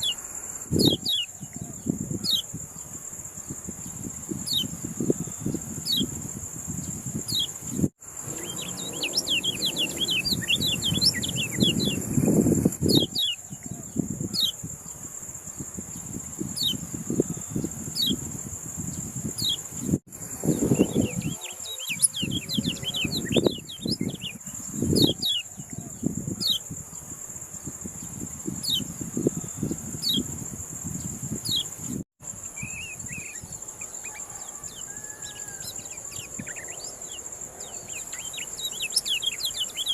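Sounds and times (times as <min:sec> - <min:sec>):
high cricket-like whine: 0:00.0 - 0:39.9
songbird chirping: 0:06.8 - 0:15.0, 0:18.9 - 0:26.8, 0:32.4 - 0:39.9.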